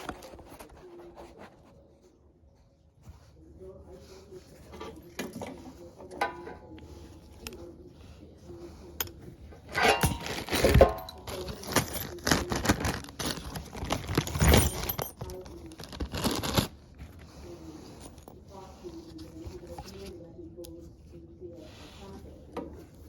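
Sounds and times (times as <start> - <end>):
hands rustling packaging: 0.0 - 1.9, 6.9 - 20.7
small clinks of parts: 9.0 - 16.6.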